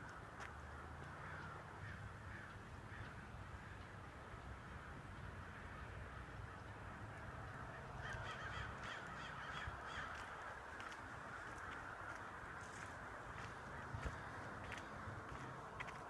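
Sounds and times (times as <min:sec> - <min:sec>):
crows cawing: 0:00.6 - 0:04.0, 0:07.5 - 0:15.5.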